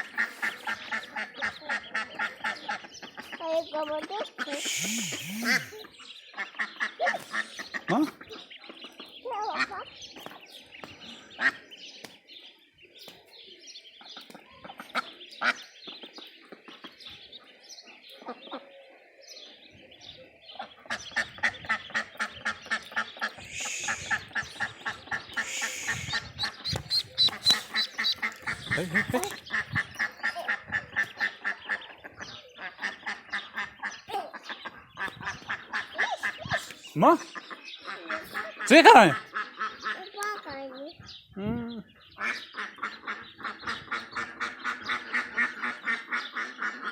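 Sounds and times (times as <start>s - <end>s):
adult ducks calling: 0.0s - 8.4s, 20.6s - 40.2s, 41.9s - 46.9s
ducklings peeping: 0.0s - 10.4s, 20.5s - 40.1s, 41.5s - 46.9s.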